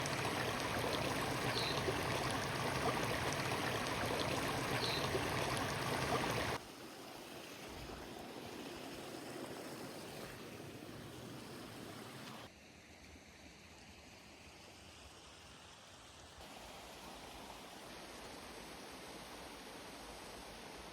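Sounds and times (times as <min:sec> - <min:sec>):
rushing water: 0:00.0 - 0:12.5.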